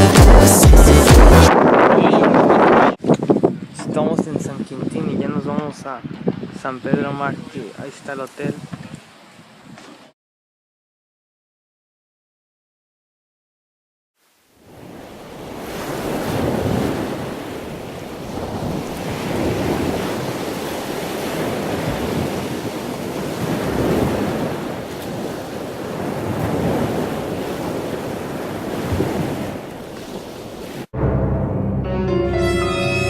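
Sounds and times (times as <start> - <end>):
wind buffeting microphone: 1.5 - 9.8, 14.8 - 30.8
ocean surf: 14.2 - 31.2.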